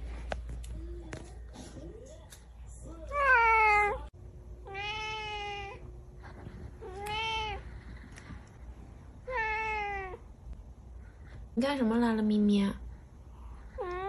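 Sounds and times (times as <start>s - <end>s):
cat meowing: 4.6s - 5.8s, 9.2s - 10.2s.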